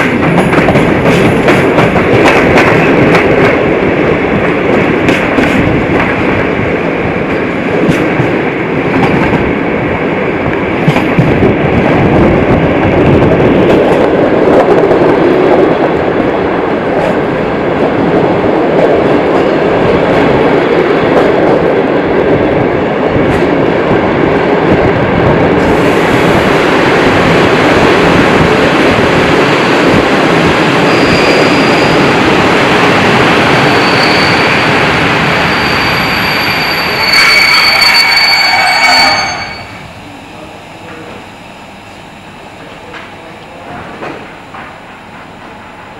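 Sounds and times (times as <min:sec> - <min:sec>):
train wheels rumbling on rails: 0:00.0 - 0:45.9
high brake squeal: 0:30.8 - 0:32.0, 0:33.6 - 0:39.8.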